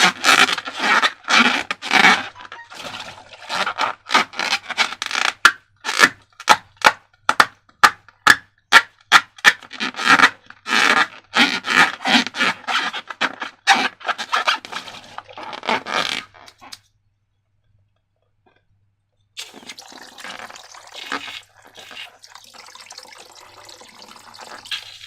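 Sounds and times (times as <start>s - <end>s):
hands rubbing balloons and slime: 21.0s - 22.1s.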